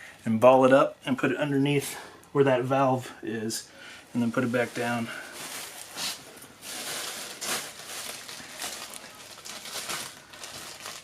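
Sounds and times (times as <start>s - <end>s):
cloth rustling and scuffing: 4.2s - 8.9s.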